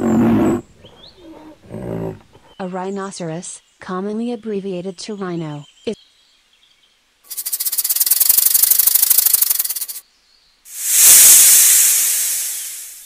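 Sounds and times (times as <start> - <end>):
snake hissing: 7.3 - 10.0, 10.7 - 13.0
snake rattle: 7.3 - 10.0, 10.7 - 13.0.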